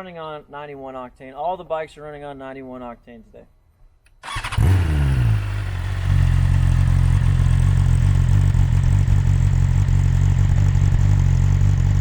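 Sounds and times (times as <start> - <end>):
motorcycle engine idling: 4.2 - 12.0.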